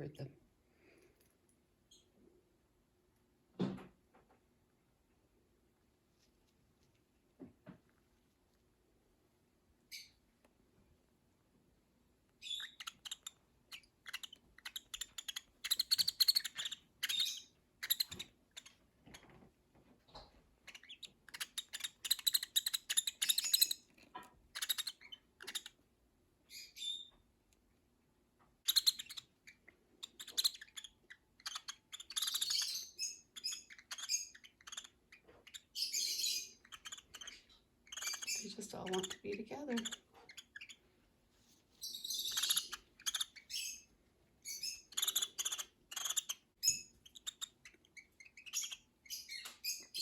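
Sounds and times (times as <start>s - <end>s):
baby lovebirds chirping: 9.9s - 10.2s, 12.4s - 19.5s, 20.1s - 25.8s, 26.5s - 27.2s, 28.6s - 40.9s, 41.7s - 50.0s.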